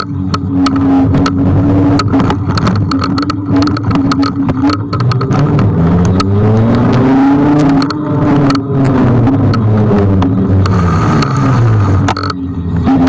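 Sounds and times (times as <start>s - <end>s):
scooter ride rumble: 0.0s - 13.0s
vehicle engine: 0.0s - 13.0s
rattling clicks from bumps: 2.0s - 6.3s.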